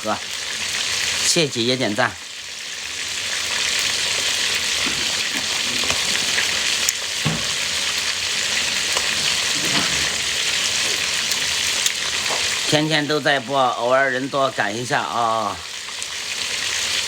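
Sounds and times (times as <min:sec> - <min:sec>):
food sizzling in hot oil: 0:00.0 - 0:17.0
single knock: 0:07.2 - 0:07.6.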